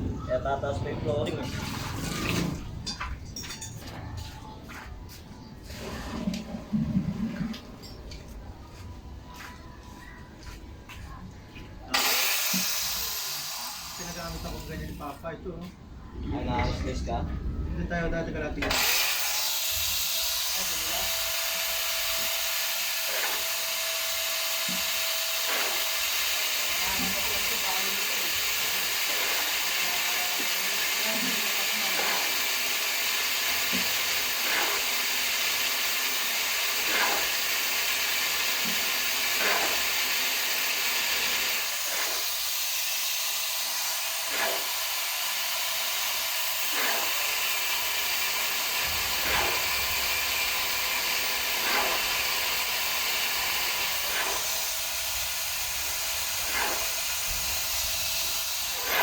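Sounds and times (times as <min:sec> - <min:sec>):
welding arc frying hiss: 0:12.0 - 0:15.1, 0:18.8 - 0:59.0.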